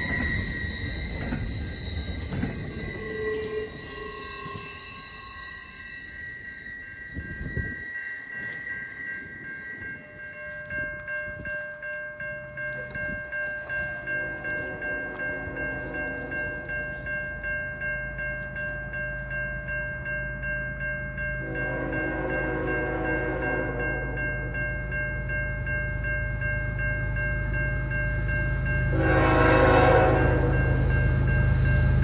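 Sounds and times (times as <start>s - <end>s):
locomotive rumble: 0.0s - 7.9s
pulsing ringing tones: 0.0s - 32.0s.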